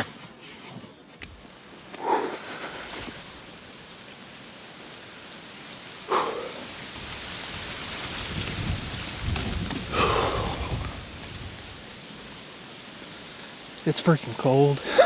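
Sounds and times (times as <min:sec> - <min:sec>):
wind buffeting microphone: 0:06.7 - 0:12.1.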